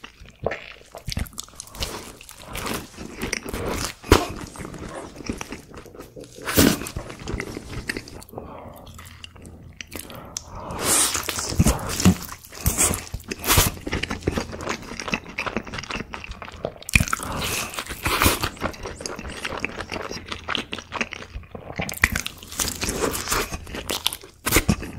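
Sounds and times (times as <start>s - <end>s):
crunchy chewing of fried chicken: 0.0s - 24.9s.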